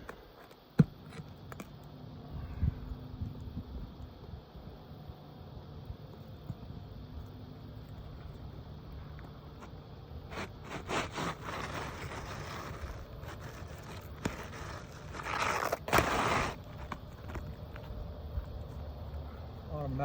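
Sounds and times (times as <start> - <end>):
shingles being torn and scraped: 9.6 - 17.9.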